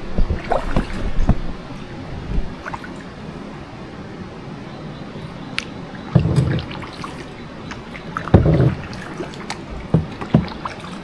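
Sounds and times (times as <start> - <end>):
paddle splashing in water: 0.0 - 3.2, 5.9 - 11.0
water washing: 0.0 - 3.6, 5.4 - 11.0.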